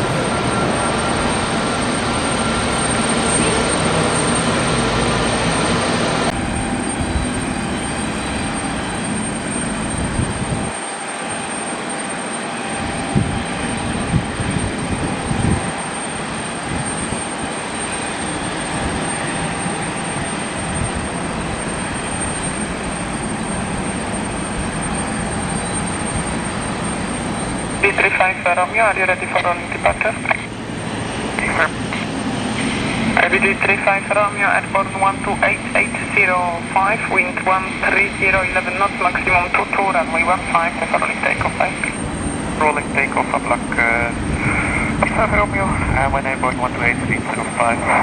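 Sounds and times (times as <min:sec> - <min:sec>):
jet engine roar: 0:00.0 - 0:48.0.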